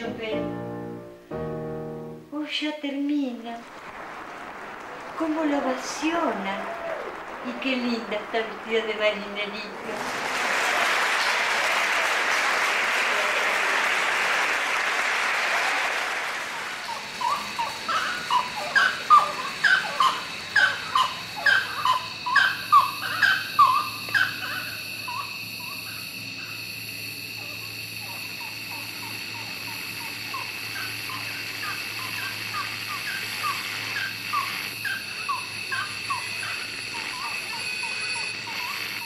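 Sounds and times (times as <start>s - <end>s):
steady high-pitched hum: 15.8s - 39.0s
bird calling in falling notes: 16.4s - 25.8s.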